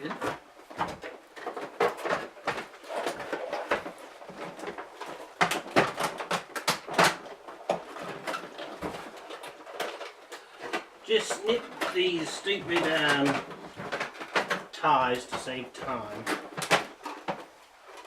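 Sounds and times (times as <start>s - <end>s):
packaging crackling and clicking: 0.0s - 18.0s.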